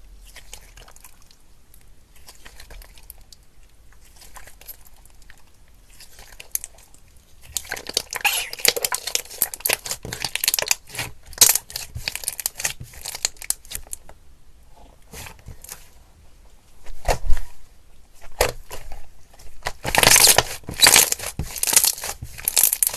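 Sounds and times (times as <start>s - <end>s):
slime crackling: 4.0s - 14.0s, 19.7s - 22.9s.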